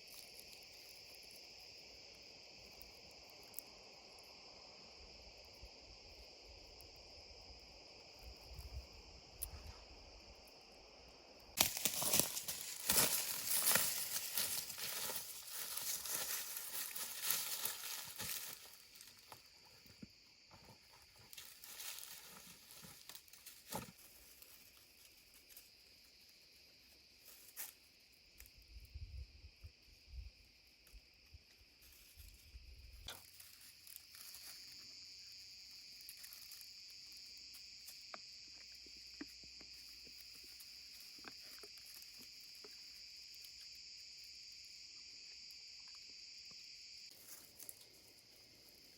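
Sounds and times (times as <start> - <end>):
high-pitched insect chorus: 0.0 - 48.9
rustling crinkling handling noise: 11.6 - 19.1.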